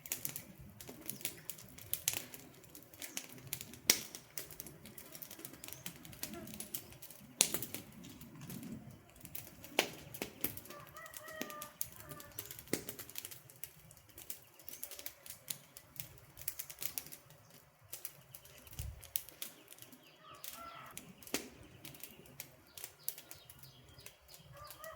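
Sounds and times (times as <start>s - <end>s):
campfire crackling and popping: 0.0s - 24.9s
bird calls: 5.0s - 8.2s, 9.9s - 12.6s, 17.4s - 24.9s.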